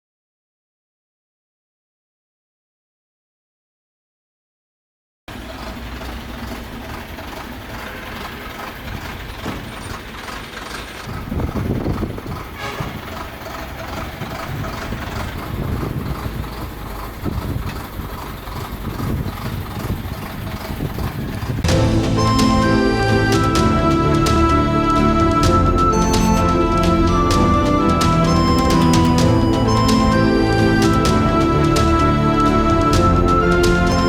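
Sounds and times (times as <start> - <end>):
backhoe engine under load: 5.3 - 34.0.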